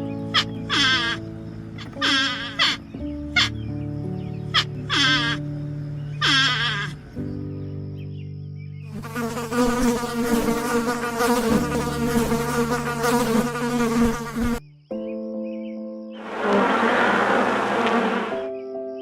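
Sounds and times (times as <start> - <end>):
flying insect buzzing: 0.3 - 2.8, 8.9 - 14.6, 16.2 - 18.5.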